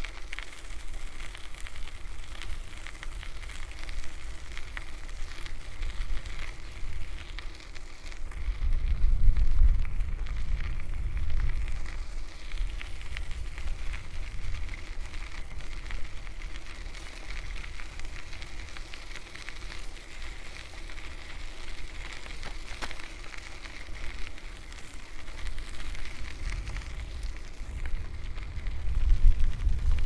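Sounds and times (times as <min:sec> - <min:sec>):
bicycle tyres rolling on path: 0:00.0 - 0:30.0
wind buffeting microphone: 0:08.2 - 0:18.9, 0:21.8 - 0:30.0.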